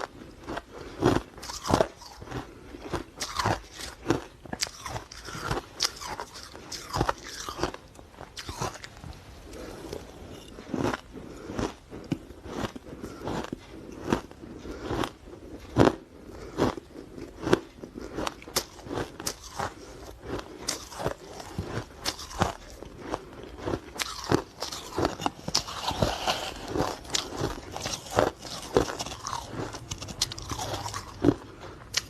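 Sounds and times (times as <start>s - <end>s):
ice crunching while chewed: 0.0s - 32.0s.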